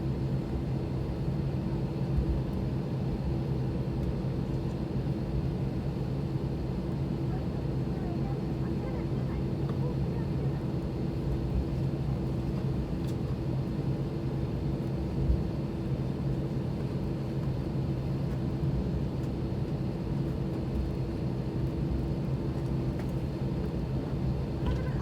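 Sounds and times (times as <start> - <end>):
aircraft cabin hum: 7.5 - 25.0.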